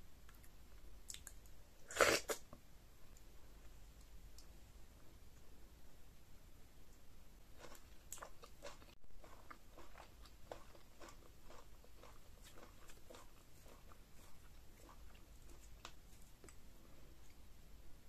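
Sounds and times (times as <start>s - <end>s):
wet chewing: 7.6s - 16.6s.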